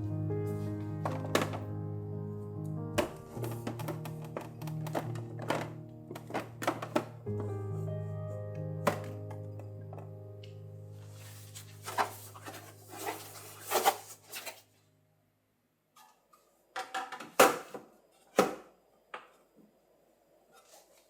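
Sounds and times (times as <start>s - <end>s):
soft background music: 0.0s - 14.4s
objects knocking and clunking: 1.0s - 1.8s, 2.9s - 7.6s, 8.8s - 10.1s, 16.8s - 19.3s.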